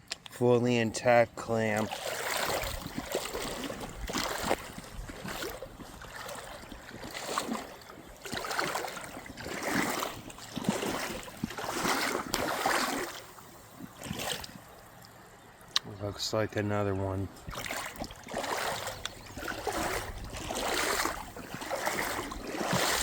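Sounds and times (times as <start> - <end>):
creek water sloshing and splashing: 0.1 - 16.0, 17.0 - 23.0.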